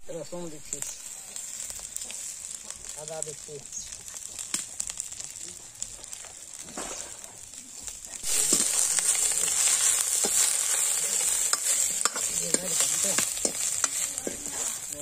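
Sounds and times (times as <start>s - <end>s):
onion frying in oil: 0.0s - 15.0s
metal ladle scraping pan: 8.3s - 15.0s.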